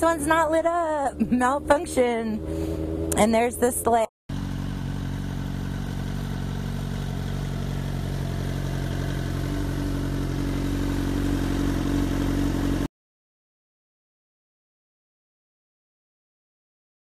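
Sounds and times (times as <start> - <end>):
minivan engine humming: 0.0 - 12.9.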